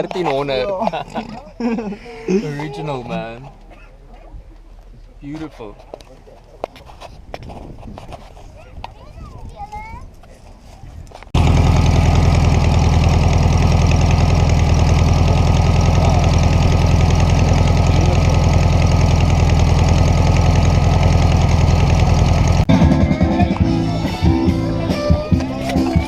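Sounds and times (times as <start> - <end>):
car engine idling: 11.4 - 22.8.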